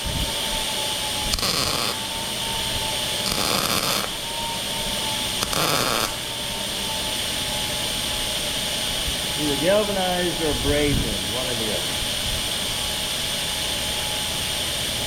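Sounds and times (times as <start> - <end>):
welder hissing: 0.0 - 14.7
background hum with faint whine: 0.0 - 15.0.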